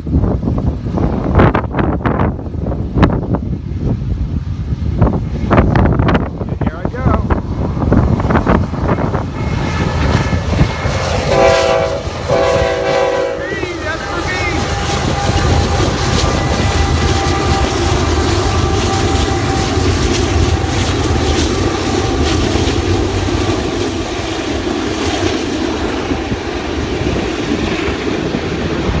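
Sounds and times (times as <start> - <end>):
train horn: 9.0 - 23.1
freight cars rumbling and clattering: 13.4 - 29.0.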